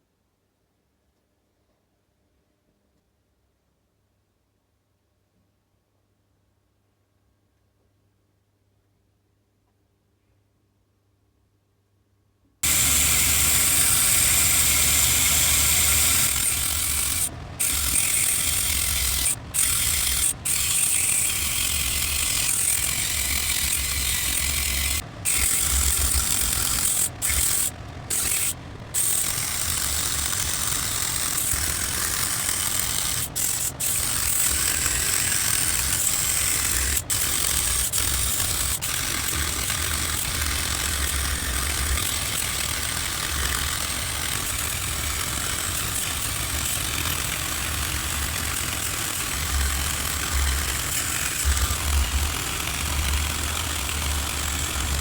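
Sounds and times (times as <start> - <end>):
power sander hissing: 12.6 - 55.0.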